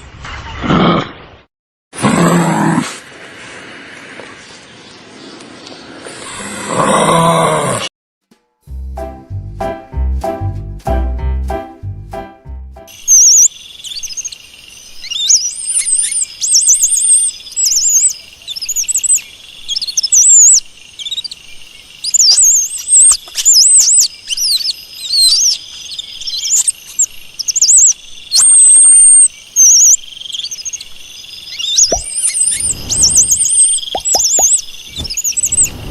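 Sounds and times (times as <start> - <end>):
small birds chirping: 12.9 - 35.9.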